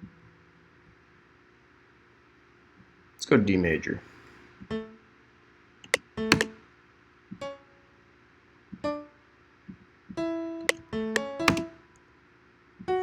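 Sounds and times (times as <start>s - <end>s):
sharp clicks: 5.8s - 6.6s, 11.2s - 11.7s
software piano notes and chords: 5.9s - 6.6s, 10.8s - 11.8s.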